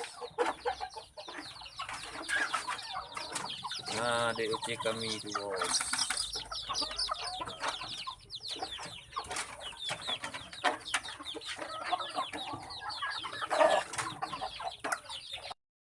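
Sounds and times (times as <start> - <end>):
chickens clucking: 0.0 - 15.6.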